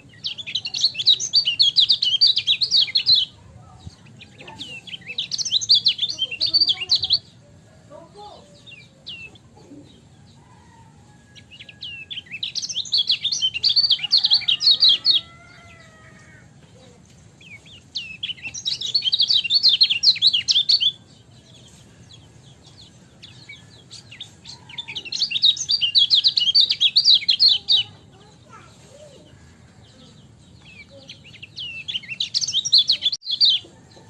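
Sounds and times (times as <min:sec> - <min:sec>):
bird chattering chirps: 0:00.0 - 0:07.4, 0:11.5 - 0:15.9, 0:17.0 - 0:33.8.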